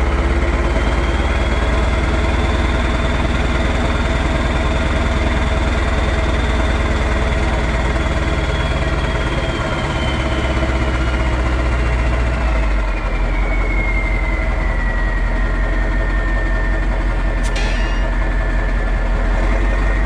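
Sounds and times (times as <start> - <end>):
high whine falling in pitch: 17.4 - 18.4.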